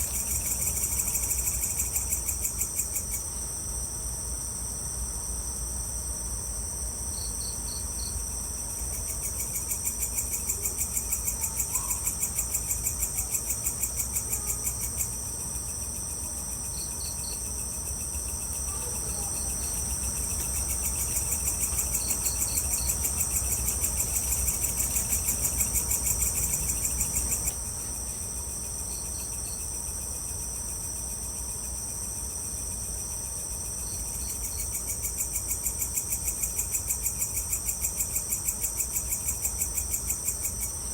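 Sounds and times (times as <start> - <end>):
insect trilling in rapid pulses: 0.0 - 3.3, 16.6 - 27.7
crickets shrilling: 0.0 - 3.9, 5.5 - 40.9.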